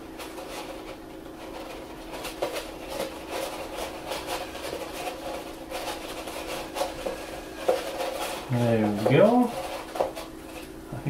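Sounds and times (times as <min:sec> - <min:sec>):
faint steady hum: 0:00.0 - 0:11.0
paper rustling: 0:00.2 - 0:10.8.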